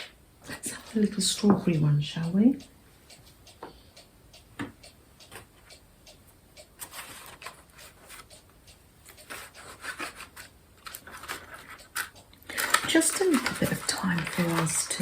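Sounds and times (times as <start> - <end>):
small objects rustling: 10.8 - 15.0.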